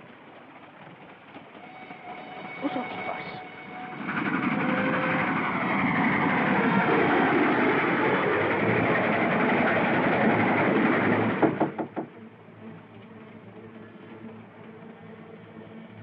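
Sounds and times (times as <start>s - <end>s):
steam train rushing: 0.0s - 16.0s
sharp knocks on a door: 11.4s - 12.1s.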